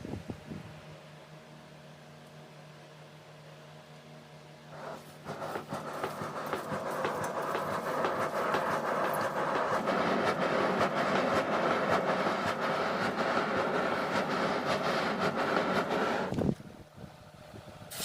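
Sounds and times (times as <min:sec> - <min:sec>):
mechanical rubbing noise: 0:04.7 - 0:16.6.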